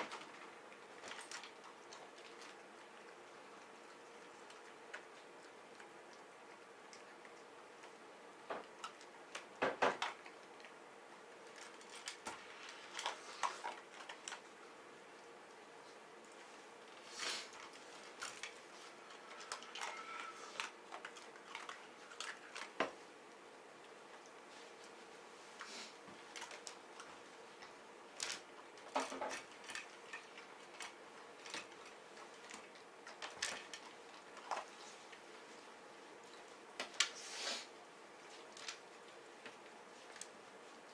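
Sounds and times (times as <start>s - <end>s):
dog eating from a bowl: 0.0s - 25.2s, 26.2s - 37.0s
dog eating dry food clicks: 20.6s - 22.8s, 28.2s - 34.7s.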